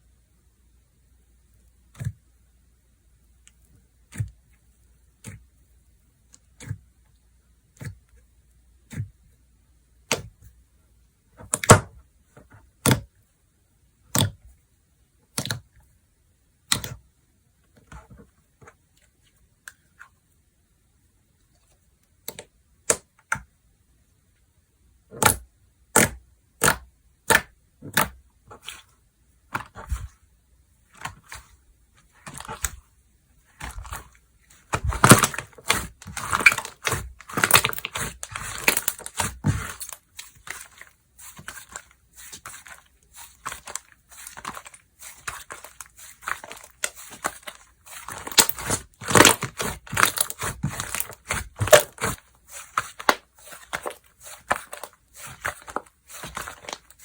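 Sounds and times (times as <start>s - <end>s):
slime crunching and crackling: 33.5s - 57.0s.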